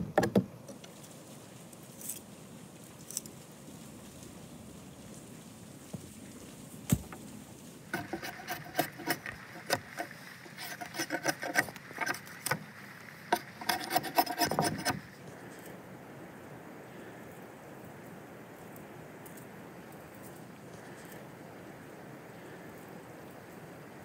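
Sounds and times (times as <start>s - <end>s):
knife scraping bark: 7.9s - 15.8s.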